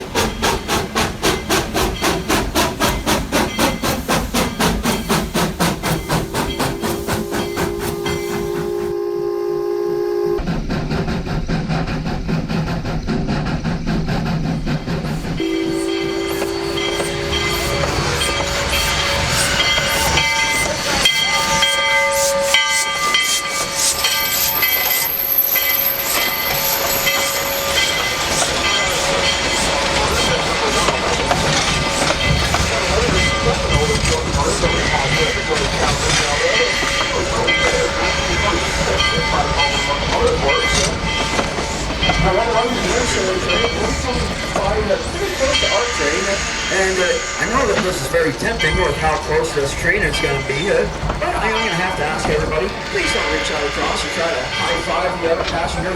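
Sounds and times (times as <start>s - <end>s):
steam locomotive chuffing: 0.0s - 55.9s
high steady tones: 14.8s - 48.0s.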